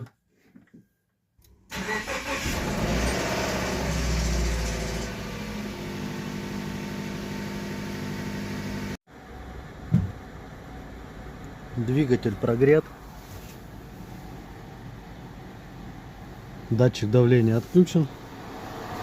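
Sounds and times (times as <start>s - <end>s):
car engine starting and idling: 1.5s - 9.0s.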